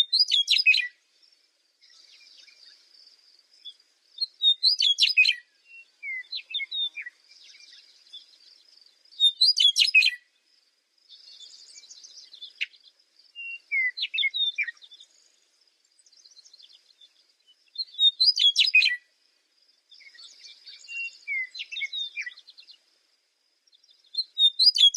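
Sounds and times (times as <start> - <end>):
bird chirping rapidly: 9.2 - 10.2, 24.2 - 24.9
bird twittering and chattering: 15.9 - 19.0, 23.7 - 24.9.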